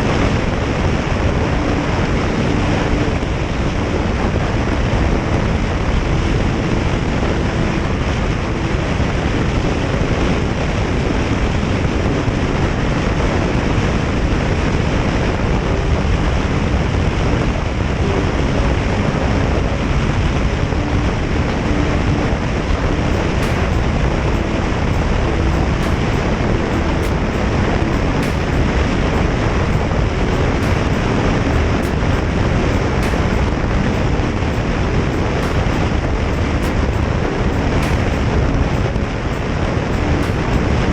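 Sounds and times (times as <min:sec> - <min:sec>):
wind rush on microphone: 0:00.0 - 0:40.9.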